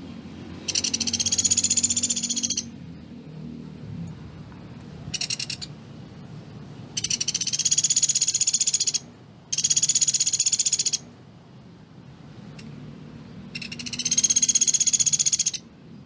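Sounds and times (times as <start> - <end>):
woodpecker rattling trills: 0.6 - 2.7, 5.1 - 5.7, 7.0 - 11.0, 13.5 - 15.6.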